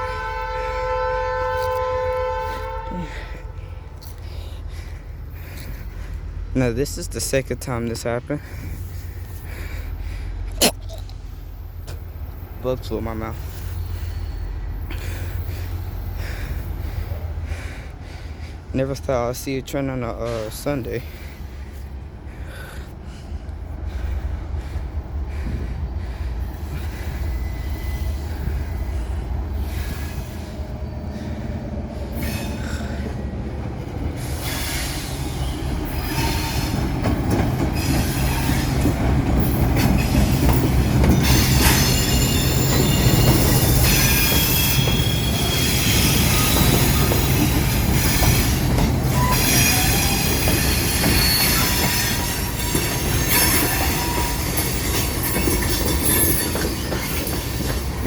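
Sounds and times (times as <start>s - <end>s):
train rumbling: 0.0s - 58.0s
train wheels squealing on rails: 11.4s - 18.6s, 23.1s - 58.0s
train wheels clickety-clack: 20.2s - 58.0s.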